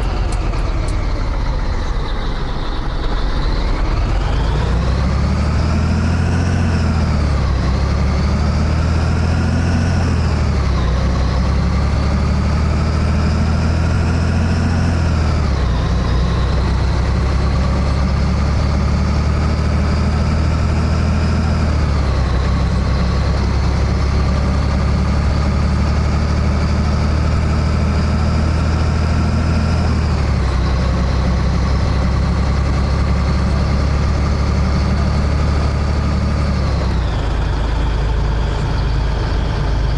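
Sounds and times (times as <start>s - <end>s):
truck diesel engine accelerating: 0.0s - 39.9s.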